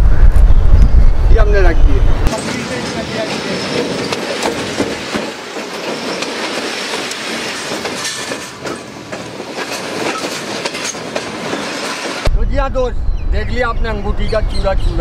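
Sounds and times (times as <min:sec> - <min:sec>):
wheels clicking over rail joints: 0:02.3 - 0:12.2
train wheels on rails: 0:02.3 - 0:12.3.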